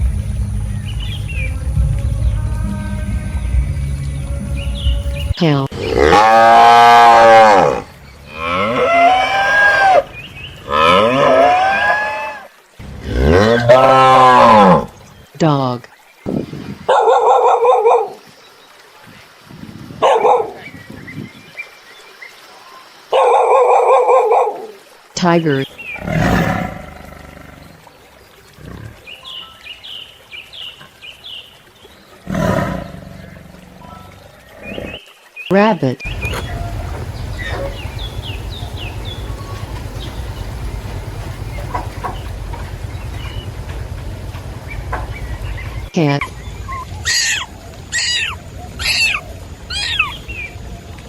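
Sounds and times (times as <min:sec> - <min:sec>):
bird chirping: 0:00.0 - 0:01.6, 0:36.0 - 0:50.7
low rumbling: 0:00.0 - 0:11.6, 0:36.0 - 0:50.9
dog barking: 0:16.9 - 0:18.2, 0:20.0 - 0:20.6, 0:23.1 - 0:24.8, 0:36.1 - 0:39.6
low rumble: 0:36.1 - 0:47.9.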